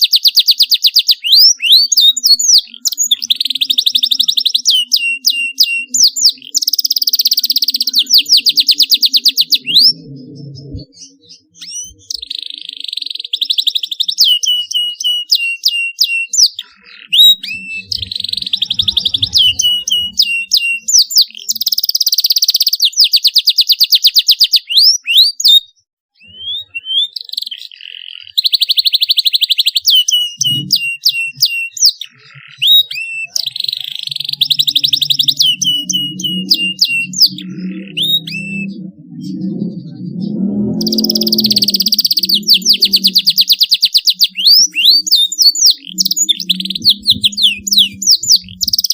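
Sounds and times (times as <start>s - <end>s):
canary singing trills: 0.0s - 48.9s.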